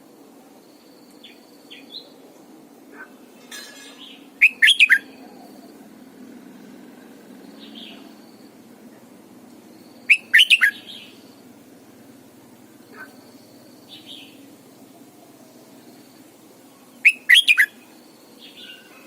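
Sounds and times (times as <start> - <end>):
bird singing gliding notes: 4.0 - 8.7, 9.9 - 11.4
soft short bird chirps: 10.1 - 11.1.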